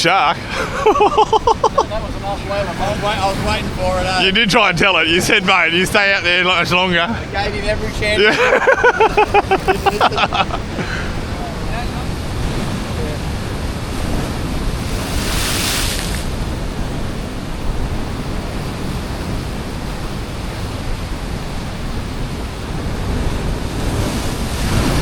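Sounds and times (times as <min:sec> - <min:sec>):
wind buffeting microphone: 0:00.0 - 0:25.0
hissing rush of water: 0:00.1 - 0:16.7
ocean swell washing over rocks: 0:00.1 - 0:25.0.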